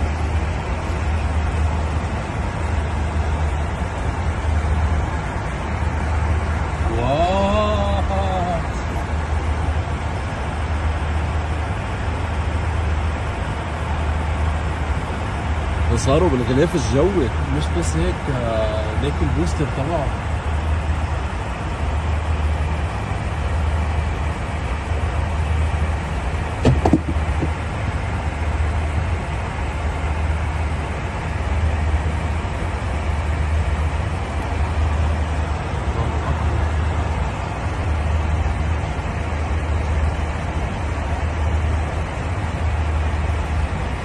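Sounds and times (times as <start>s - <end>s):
airliner cabin engine noise: 0.0s - 44.0s
short knock: 26.6s - 27.6s.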